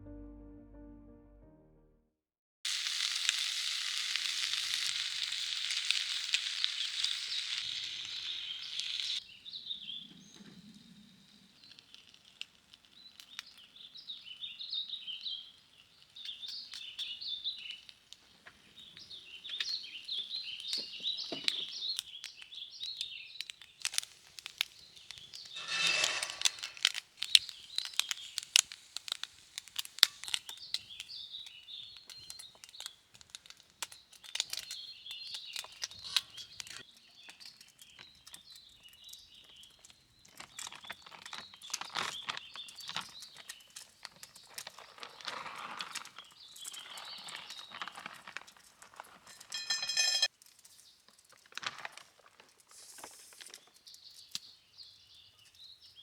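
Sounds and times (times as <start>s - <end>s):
food sizzling in a pan: 2.7s - 10.0s, 23.4s - 33.4s
small birds chirping: 3.0s - 51.1s, 53.5s - 56.0s
clicks and crinkling: 11.6s - 54.7s.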